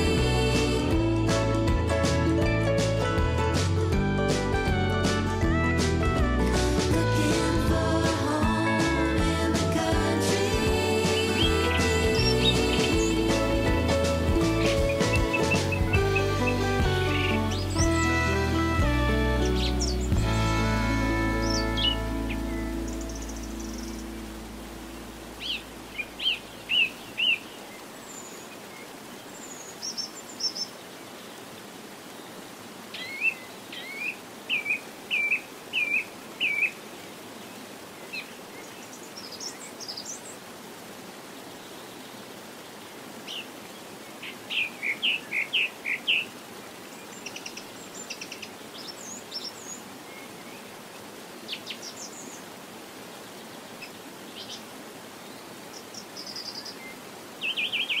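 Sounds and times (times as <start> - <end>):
birds chirping: 10.8 - 31.2
steady background hiss: 16.2 - 58.0.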